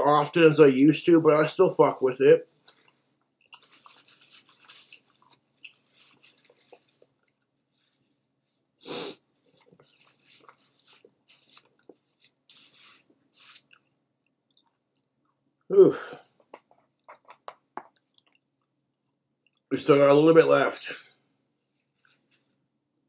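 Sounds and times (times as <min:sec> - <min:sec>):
faint chewing: 0:02.4 - 0:19.7
paper wrapper rustling: 0:03.5 - 0:08.0, 0:09.7 - 0:13.7.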